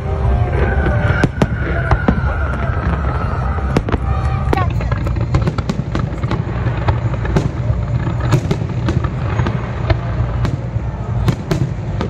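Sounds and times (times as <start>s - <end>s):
fireworks bursting and crackling: 0.0s - 12.0s
steady low rumble: 0.0s - 12.0s.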